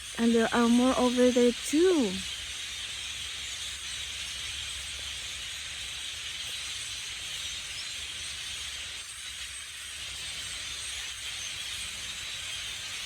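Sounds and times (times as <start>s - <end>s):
flock of blackbirds chattering: 0.0s - 2.3s.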